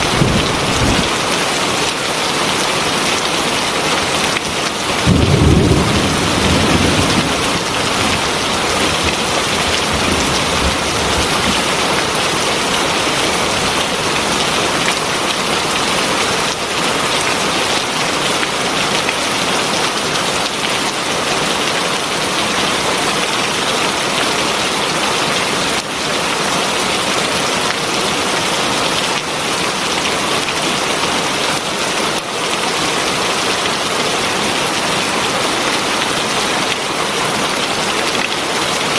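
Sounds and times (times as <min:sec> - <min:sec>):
heavy rain hissing: 0:00.0 - 0:20.4.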